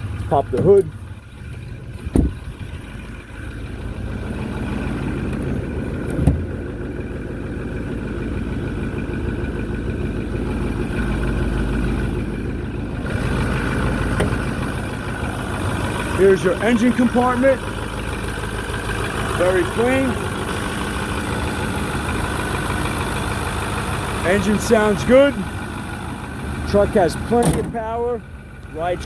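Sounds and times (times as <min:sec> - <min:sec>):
diesel engine idling: 0:00.0 - 0:29.0
short thump: 0:02.0 - 0:02.4, 0:06.1 - 0:06.5, 0:14.2 - 0:14.5.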